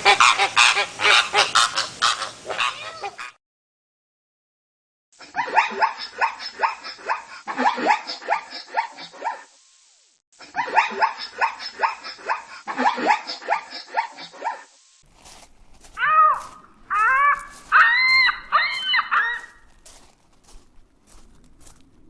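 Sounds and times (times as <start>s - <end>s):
dog barking rapidly: 16.0s - 19.7s.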